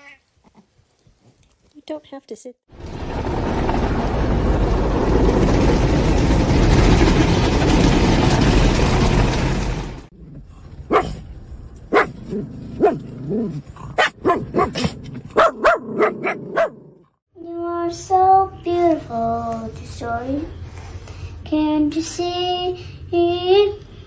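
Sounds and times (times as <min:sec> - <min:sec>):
dog barking and yipping: 0:10.9 - 0:11.2, 0:11.9 - 0:17.0.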